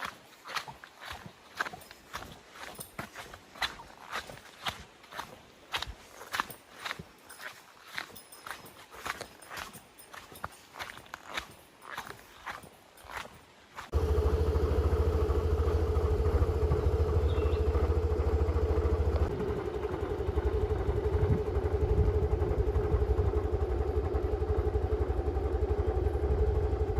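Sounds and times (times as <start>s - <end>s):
engine starting and idling: 13.9s - 26.9s.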